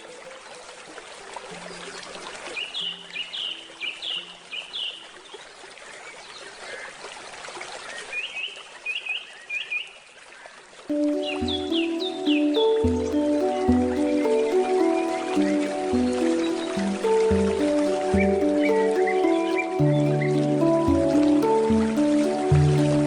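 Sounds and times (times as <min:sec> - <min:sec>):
water trickling: 0:00.0 - 0:08.7, 0:10.0 - 0:23.0
bird singing: 0:02.6 - 0:05.0, 0:10.9 - 0:23.0
handpan notes: 0:10.9 - 0:23.0.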